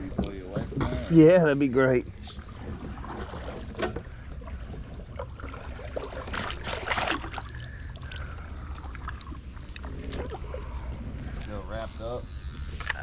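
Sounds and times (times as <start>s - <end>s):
wind and water rumble: 0.0s - 13.0s
paddle splashes: 2.3s - 10.7s.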